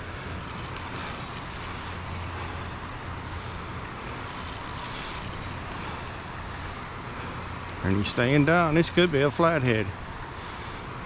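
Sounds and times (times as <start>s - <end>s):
constant low rumble: 0.0s - 11.0s.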